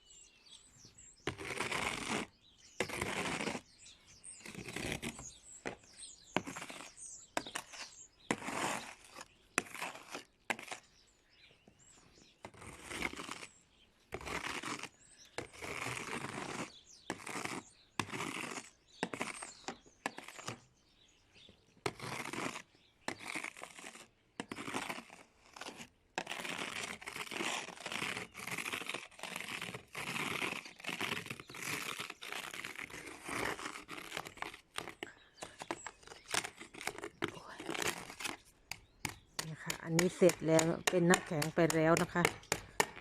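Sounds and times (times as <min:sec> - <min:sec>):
snow scraped off a car: 0:01.3 - 0:11.0, 0:12.5 - 0:13.6, 0:14.2 - 0:19.6, 0:21.9 - 0:39.0.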